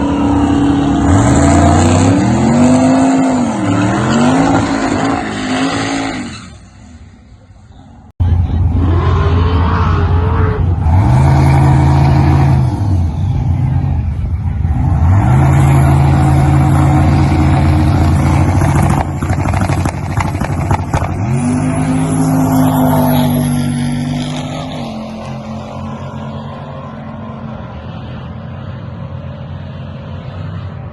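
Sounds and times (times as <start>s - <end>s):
exhaust crackling: 15.7s - 22.4s.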